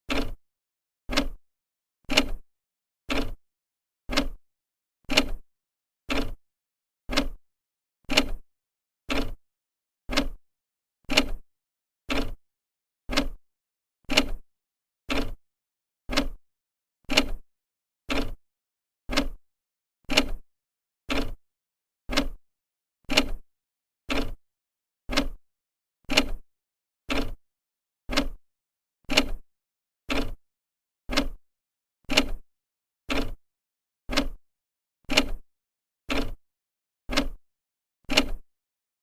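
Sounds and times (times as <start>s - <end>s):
clock ticking: 1.1s - 1.4s, 4.1s - 4.4s, 7.1s - 7.4s, 10.1s - 10.4s, 13.1s - 13.4s, 16.1s - 16.4s, 19.1s - 19.4s, 22.1s - 22.4s, 25.1s - 25.4s, 28.1s - 28.4s, 31.1s - 31.4s, 33.1s - 33.4s, 34.1s - 34.4s, 36.1s - 36.4s, 37.1s - 37.4s.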